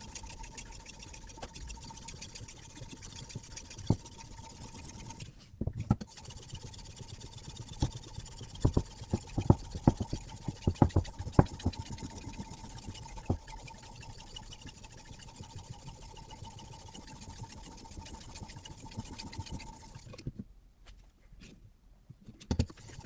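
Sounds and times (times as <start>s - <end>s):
knife rasping on sharpener: 0.0s - 5.3s, 6.1s - 20.1s
sharp knocks and clicks: 8.6s - 11.8s, 22.3s - 22.8s.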